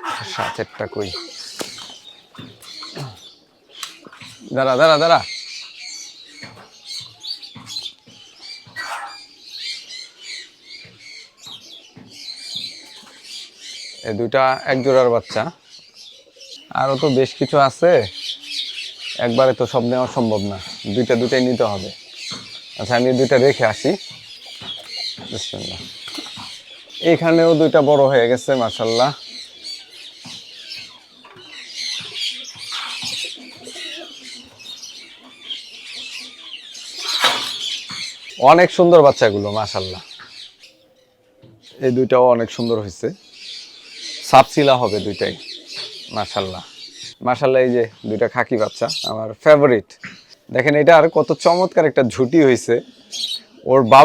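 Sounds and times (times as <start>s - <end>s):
pigeons cooing: 0.0s - 49.2s, 50.0s - 54.0s
birds chirping: 0.0s - 54.0s
wings flapping: 1.3s - 3.2s, 24.6s - 26.6s.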